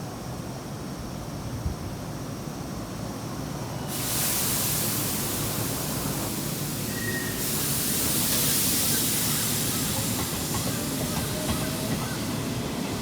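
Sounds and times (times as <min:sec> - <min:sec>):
train low rumble: 0:00.1 - 0:13.0
loud air hiss: 0:03.8 - 0:13.0.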